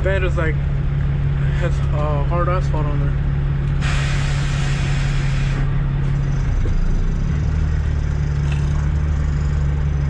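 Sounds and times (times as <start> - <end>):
truck diesel engine idling: 0.0 - 10.0
air hiss: 3.8 - 5.6.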